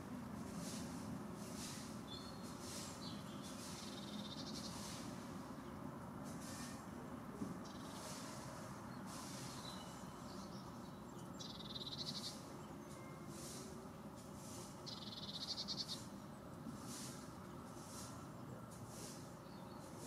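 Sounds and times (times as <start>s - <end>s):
faint background hiss: 0.0s - 20.0s.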